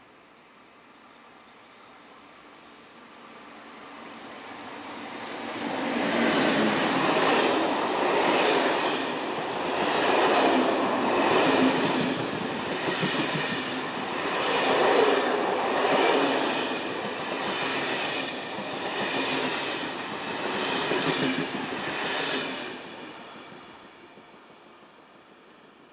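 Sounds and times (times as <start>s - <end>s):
train wagons clattering over rails: 6.1s - 14.8s.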